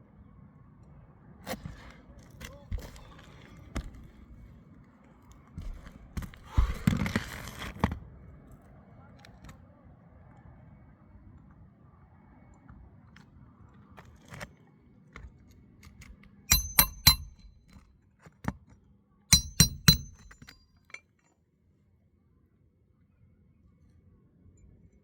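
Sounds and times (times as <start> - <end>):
hammer striking roofing nails: 16.5 - 17.8, 19.3 - 20.6.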